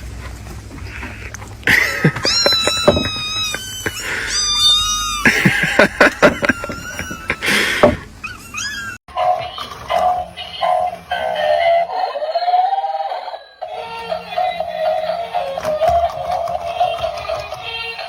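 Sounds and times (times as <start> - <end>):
knocks and clatter: 0.0 - 3.3
cat meowing: 2.2 - 5.3, 6.2 - 7.6
music with synthetic singing: 9.1 - 18.0.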